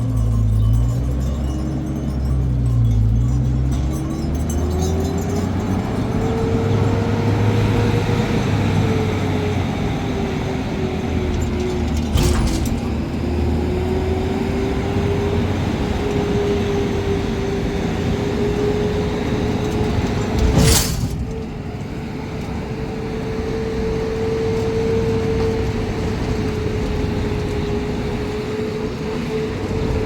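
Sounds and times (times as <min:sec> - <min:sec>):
engine running: 0:00.0 - 0:30.0.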